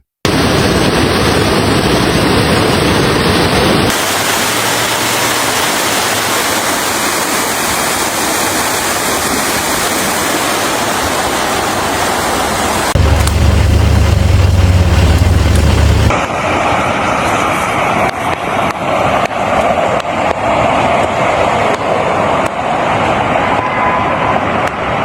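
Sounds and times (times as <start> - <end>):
rushing floodwater: 0.3 - 25.0
deep rumble: 12.9 - 16.6.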